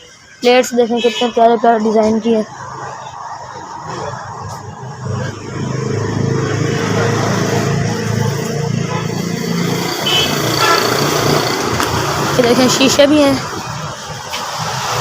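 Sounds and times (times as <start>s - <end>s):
vehicle engine running: 5.6s - 13.4s.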